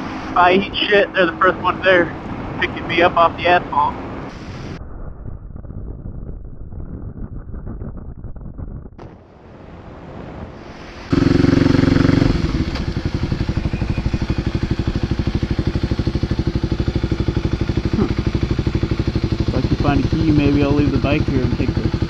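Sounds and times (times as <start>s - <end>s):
motorcycle engine: 11.0s - 22.0s.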